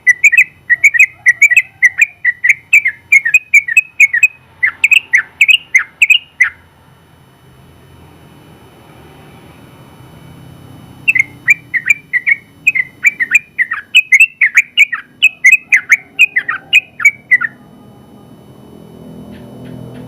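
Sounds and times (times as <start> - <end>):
bird singing sharp chirping notes: 0.0 - 6.6, 11.0 - 17.6.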